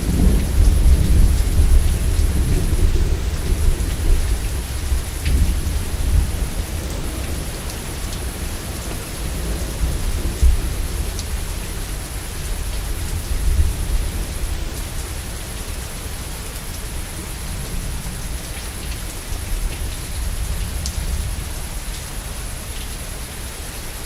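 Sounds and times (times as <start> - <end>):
thunder rumble: 0.0 - 15.1
heavy rain: 0.0 - 24.0.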